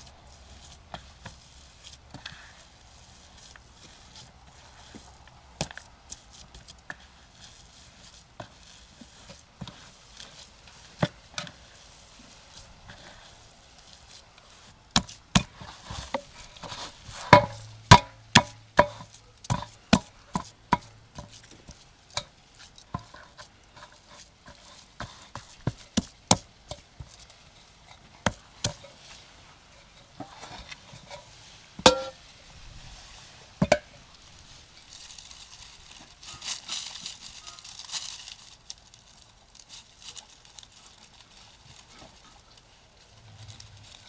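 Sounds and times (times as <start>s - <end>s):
knife chopping on cutting board: 15.0s - 21.8s.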